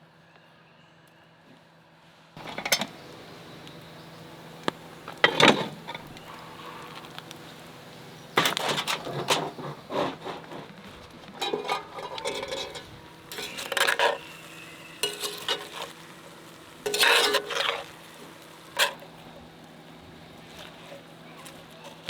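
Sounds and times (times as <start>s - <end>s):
metal utensil scraping a pan: 2.4s - 3.6s, 5.0s - 7.2s, 8.3s - 19.2s
food sizzling faintly: 2.4s - 22.0s.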